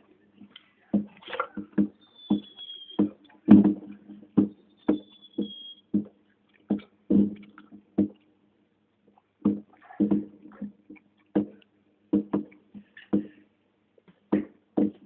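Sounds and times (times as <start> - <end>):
fireworks bangs: 1.0 - 6.1.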